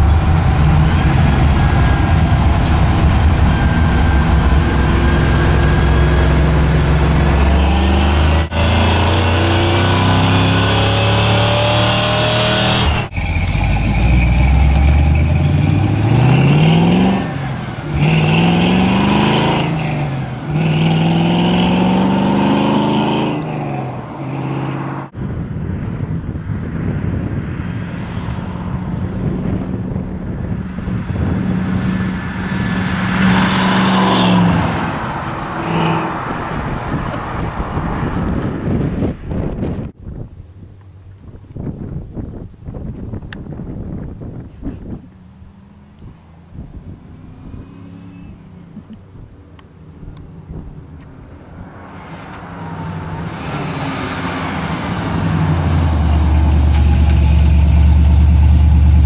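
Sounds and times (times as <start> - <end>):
pickup truck engine running: 0.0 - 7.6, 53.9 - 59.0
pickup truck engine approaching: 0.0 - 11.2, 12.8 - 22.6, 28.4 - 59.0.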